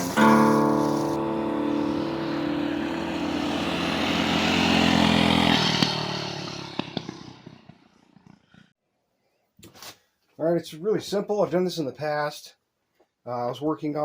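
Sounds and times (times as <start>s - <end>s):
vehicle engine passing by: 0.0s - 8.3s.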